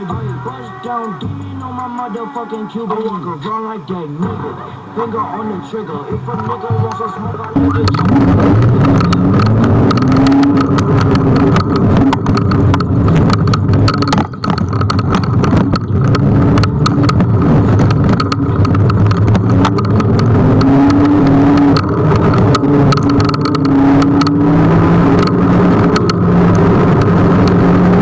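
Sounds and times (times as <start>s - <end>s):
road rumble with small knocks: 0.0s - 28.0s
wind buffeting: 7.5s - 28.0s
electric motor tone rising: 7.6s - 28.0s.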